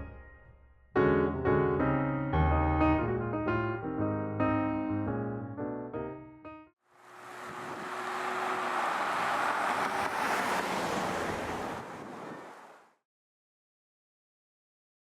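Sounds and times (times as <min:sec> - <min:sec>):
piano music: 0:00.0 - 0:06.7
steady rushing noise: 0:07.0 - 0:12.9.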